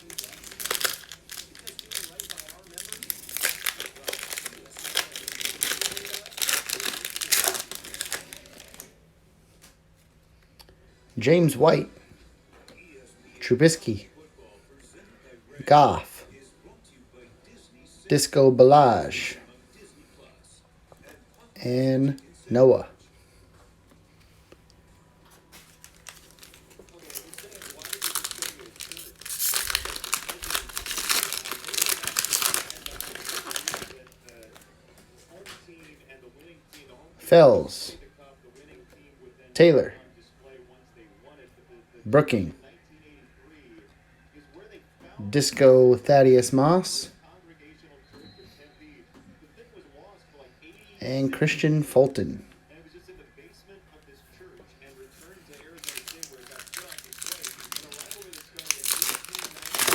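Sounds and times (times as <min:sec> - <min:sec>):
card pack wrapper crinkling and tearing: 0:00.0 - 0:08.9, 0:25.6 - 0:34.7, 0:55.2 - 0:59.9.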